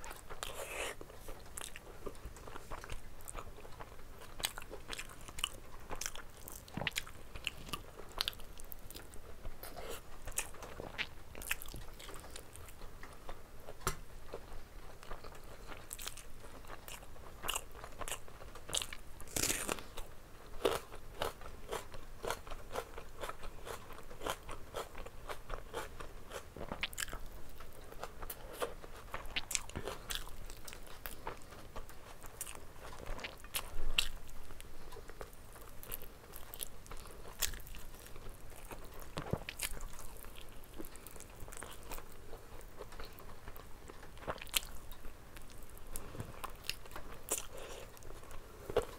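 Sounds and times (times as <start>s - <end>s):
person chewing with wet smacks: 0.0s - 48.9s
crunchy onion bites: 15.2s - 31.5s, 35.6s - 43.2s.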